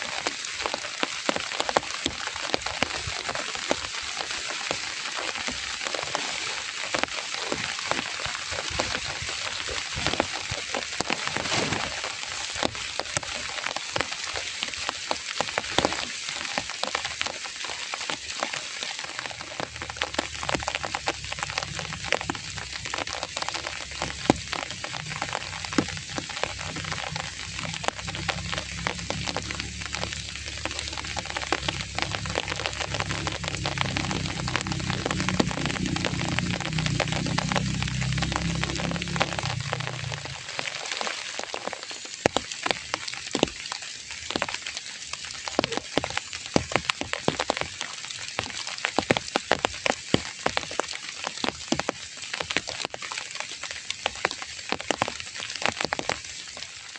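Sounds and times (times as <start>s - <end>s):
heavy rain falling: 0.0s - 56.9s
low rumble: 19.1s - 41.1s.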